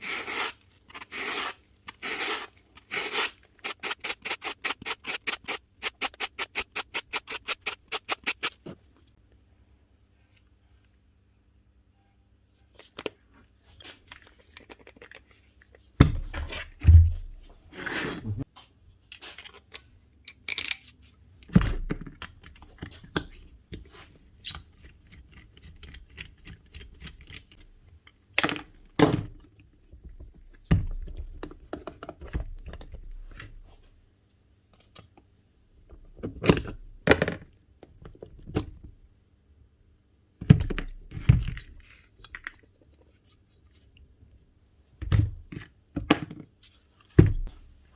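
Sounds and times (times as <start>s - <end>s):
tools clicking and scraping: 0.3s - 8.6s, 19.1s - 21.5s, 24.4s - 28.2s.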